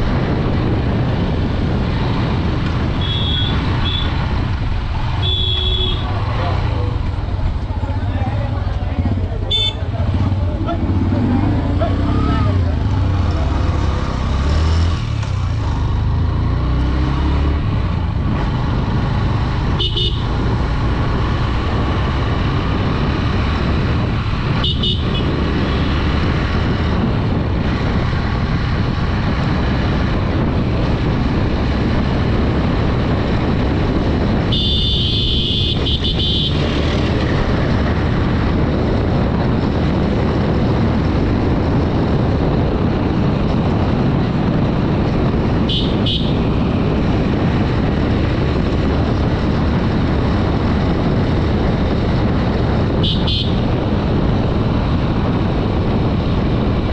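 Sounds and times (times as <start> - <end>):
motorcycle engine rumble: 0.0 - 56.9
road and wind noise: 0.0 - 56.9
horn beeping: 3.0 - 4.2, 5.2 - 6.2.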